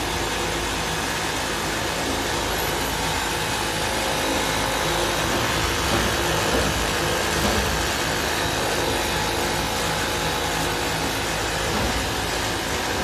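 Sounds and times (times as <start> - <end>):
sewing machine humming: 0.0 - 13.0.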